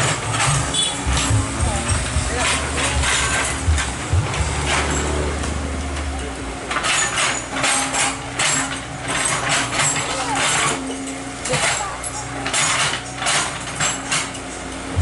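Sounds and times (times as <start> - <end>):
excavator engine hum: 0.0 - 15.0
short harsh working noises: 0.0 - 15.0.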